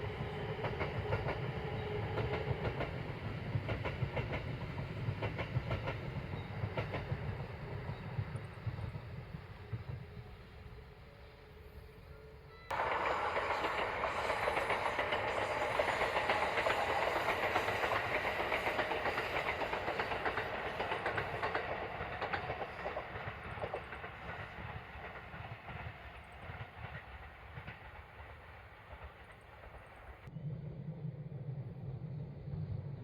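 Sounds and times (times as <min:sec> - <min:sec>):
electric train running past: 0:00.0 - 0:33.0
wheels clattering over rail joints: 0:12.7 - 0:25.9.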